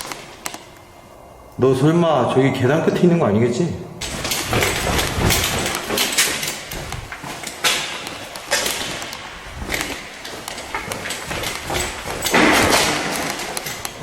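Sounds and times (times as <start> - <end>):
scuffs and knocks on hard floor: 4.0 - 14.0.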